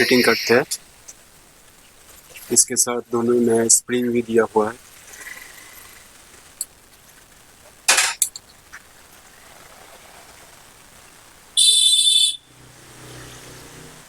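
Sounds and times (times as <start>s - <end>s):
high-pitched beep: 0.0s - 0.5s.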